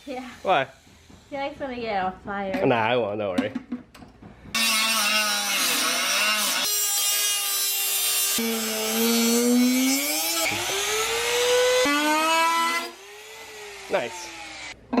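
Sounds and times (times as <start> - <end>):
grinding hiss: 0.0 - 1.9
power tool cutting disc whine: 4.6 - 14.8.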